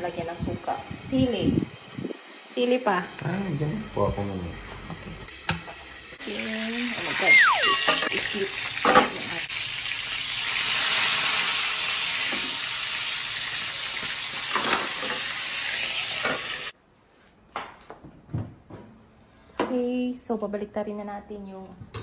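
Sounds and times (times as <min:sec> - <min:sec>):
meat sizzling in hot oil: 0:00.0 - 0:16.8
utensil clinking against pan: 0:07.6 - 0:08.4.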